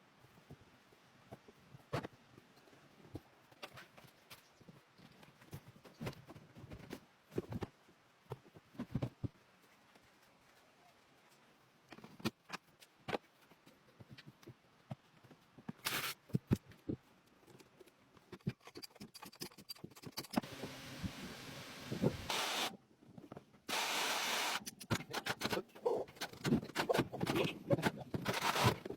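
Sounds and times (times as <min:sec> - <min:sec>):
hiss: 0:20.4 - 0:22.8, 0:23.7 - 0:24.7.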